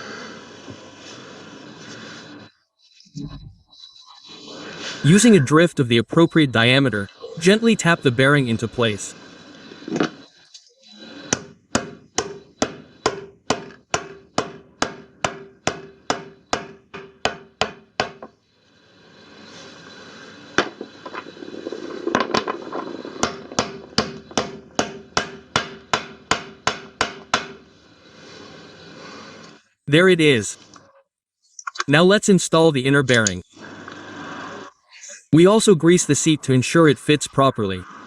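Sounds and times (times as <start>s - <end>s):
hammer tapping on metal: 11.3s - 18.3s, 23.2s - 27.6s
steady ringing tone: 11.8s - 18.3s.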